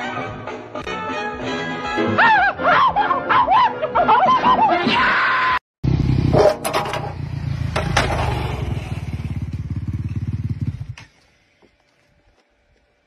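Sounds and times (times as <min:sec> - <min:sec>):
dirt bike engine running: 0:05.8 - 0:11.9.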